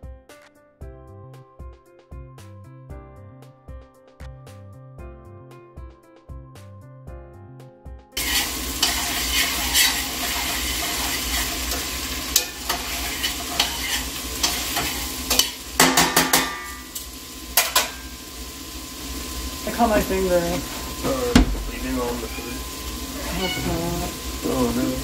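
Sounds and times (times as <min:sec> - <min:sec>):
music: 0:00.0 - 0:08.2, 0:19.6 - 0:25.0
food sizzling in a pot: 0:08.2 - 0:25.0.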